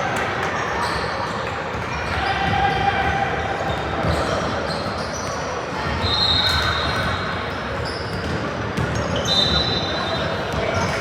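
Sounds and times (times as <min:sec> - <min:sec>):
voices echoing in hall: 0:00.0 - 0:11.0
shoes squeaking on floor: 0:03.6 - 0:11.0.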